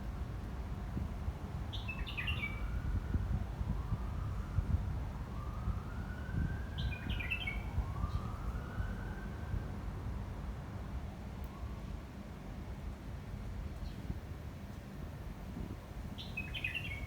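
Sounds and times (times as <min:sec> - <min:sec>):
faint siren wailing: 0:02.4 - 0:10.3, 0:11.2 - 0:12.3
wind buffeting microphone: 0:02.6 - 0:08.8, 0:13.9 - 0:17.0
bird chirping: 0:16.2 - 0:17.0.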